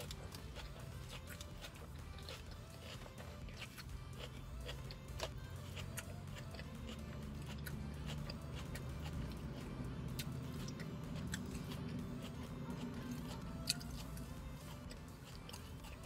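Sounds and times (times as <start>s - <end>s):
background music: 0.0s - 16.0s
person chewing salad: 0.0s - 16.0s.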